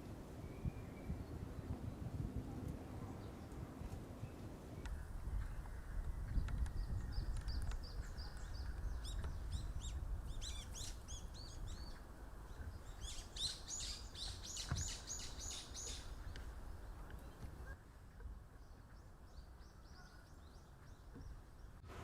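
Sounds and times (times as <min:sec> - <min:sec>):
bird chirping: 0:05.5 - 0:17.8.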